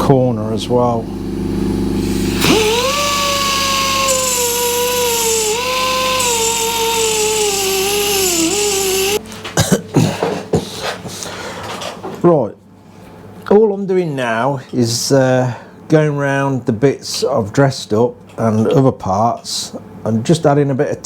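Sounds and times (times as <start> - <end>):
grinder whining on metal: 2.0 - 9.2.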